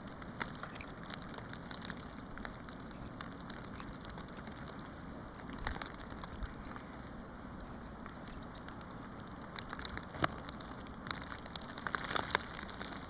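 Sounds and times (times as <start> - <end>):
steady hiss: 0.0 - 13.0
snow pattering on surfaces: 9.6 - 13.0.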